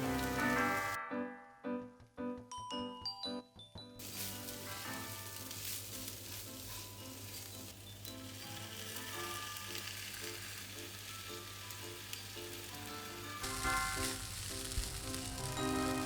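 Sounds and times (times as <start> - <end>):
food sizzling in a frying pan: 0.0 - 1.0, 4.0 - 16.0
light background music: 0.0 - 16.0.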